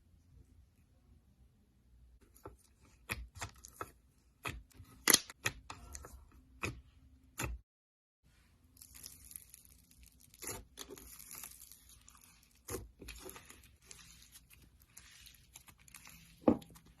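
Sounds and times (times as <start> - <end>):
sticky slime crackling: 8.7 - 17.0.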